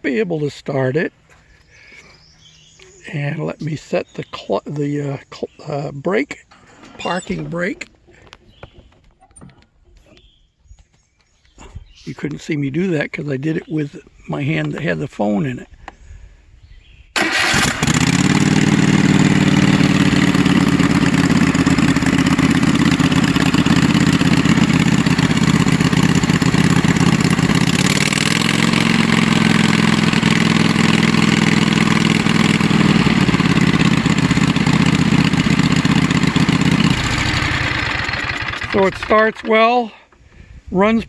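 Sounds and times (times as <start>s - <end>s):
riding mower engine running: 5.6s - 9.7s, 17.2s - 40.2s.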